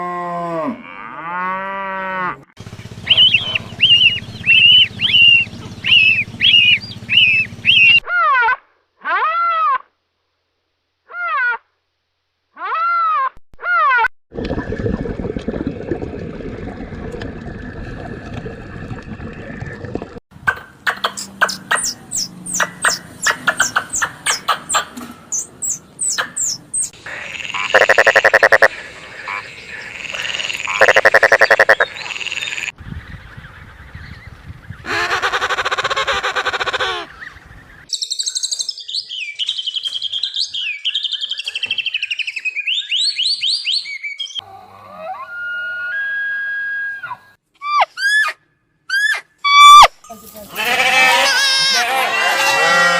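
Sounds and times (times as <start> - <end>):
high gliding bird calls: 2.9 - 8.1, 20.8 - 32.7, 36.7 - 44.4
rapid chirps: 3.0 - 8.0, 25.4 - 28.8, 29.8 - 32.7
loud pulsed animal calls: 3.0 - 8.1, 25.4 - 32.7
frog-like croaking: 27.0 - 32.7.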